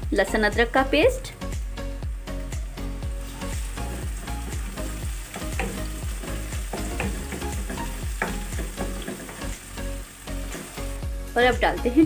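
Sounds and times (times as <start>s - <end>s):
onions sizzling in hot oil: 2.1s - 12.0s
wooden spatula scraping a pan: 3.2s - 9.6s.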